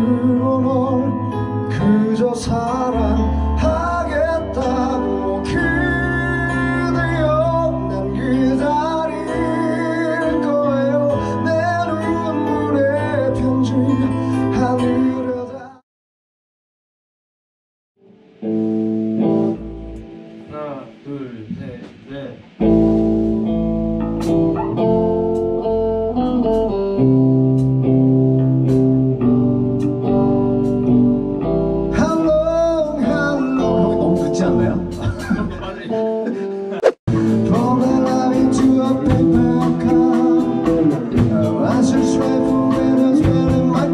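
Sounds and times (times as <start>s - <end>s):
electric keyboard piano chords: 0.0s - 15.8s, 18.2s - 43.9s
man singing slow song: 0.0s - 15.8s, 31.9s - 36.4s, 37.1s - 43.9s.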